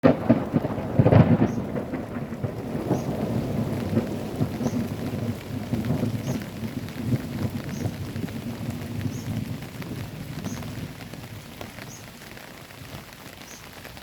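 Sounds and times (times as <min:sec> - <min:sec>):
thunder rumbling: 0:00.0 - 0:13.1
rain pattering: 0:00.0 - 0:14.0.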